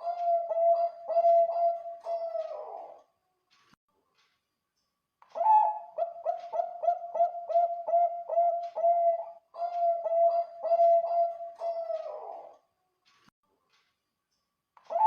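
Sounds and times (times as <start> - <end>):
dove cooing: 0.0 - 3.0, 5.4 - 12.6.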